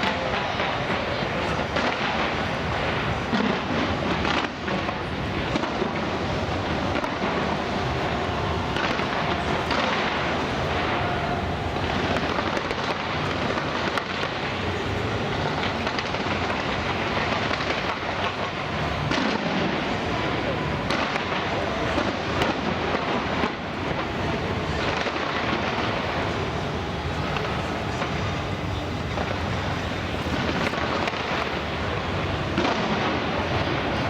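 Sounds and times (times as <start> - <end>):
fireworks bursting and crackling: 0.0 - 34.0.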